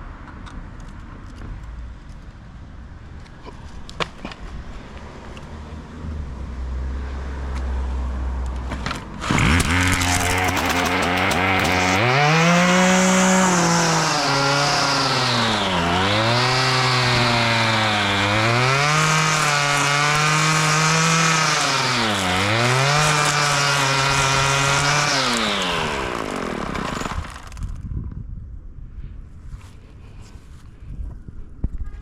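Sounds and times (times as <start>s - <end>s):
grass cutter engine revving: 9.2s - 27.8s.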